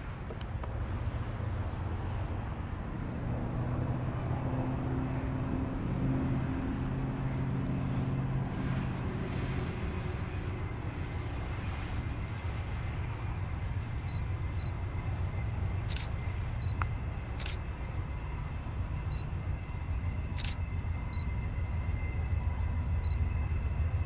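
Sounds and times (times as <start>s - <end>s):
diesel locomotive engine drone: 0.0s - 24.0s
train rolling noise: 9.6s - 24.0s.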